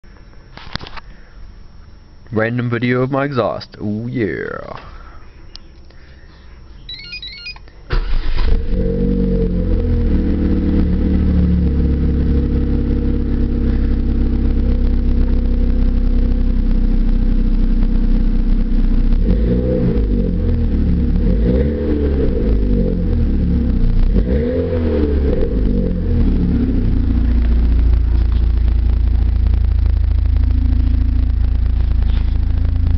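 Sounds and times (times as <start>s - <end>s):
car engine starting and idling: 0.1s - 32.9s
engine revving: 7.9s - 16.7s, 18.7s - 32.9s.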